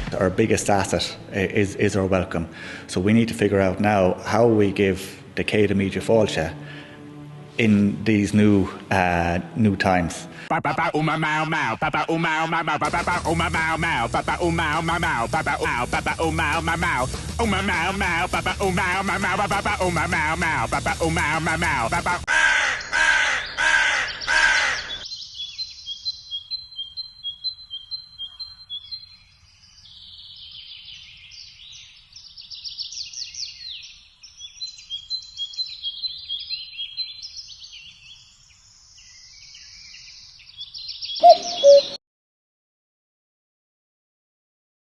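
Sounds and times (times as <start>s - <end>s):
music: 0.0s - 10.6s, 12.7s - 22.3s
small birds chirping: 22.8s - 42.0s
two-note cuckoo call: 41.2s - 42.0s.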